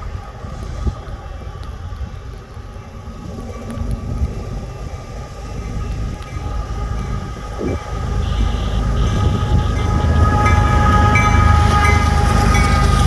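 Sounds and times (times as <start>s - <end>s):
freight train rumble: 0.0s - 13.0s
steady high tone: 2.8s - 13.0s.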